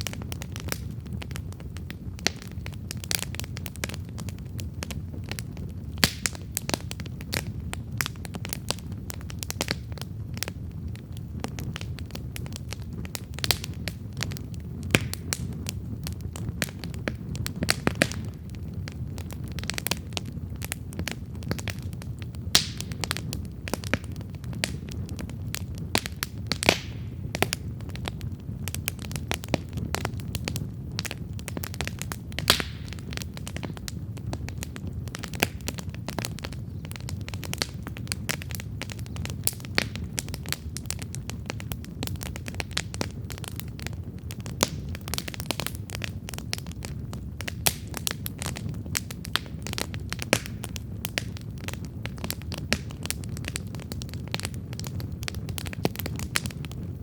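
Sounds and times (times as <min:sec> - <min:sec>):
burning wood crackling and popping: 0:00.0 - 0:57.0
low rumble of flame: 0:00.0 - 0:57.0.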